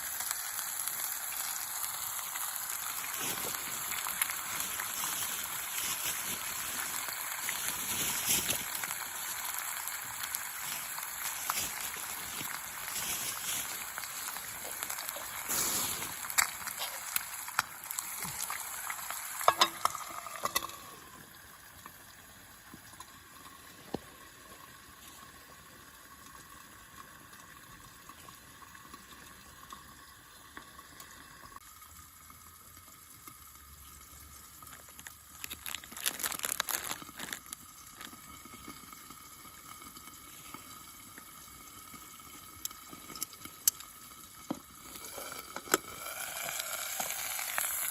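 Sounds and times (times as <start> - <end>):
steak sizzling in a frying pan: 0.0 - 23.6, 34.6 - 47.9
crackling pops: 2.8 - 20.8.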